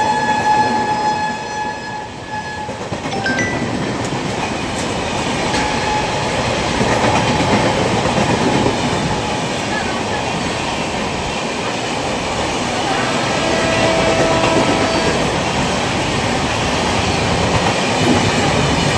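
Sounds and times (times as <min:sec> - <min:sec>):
train horn: 0:00.0 - 0:03.0, 0:12.5 - 0:15.9
train rolling rumble: 0:02.0 - 0:18.9
wheels clicking over rail joints: 0:04.0 - 0:11.3.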